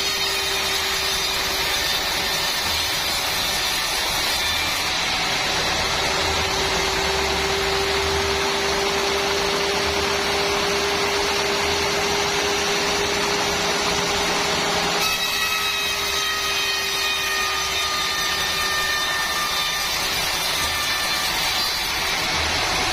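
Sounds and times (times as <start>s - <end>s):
machinery noise: 0.0s - 15.0s, 20.3s - 22.9s
saw whining through timber: 0.0s - 22.9s.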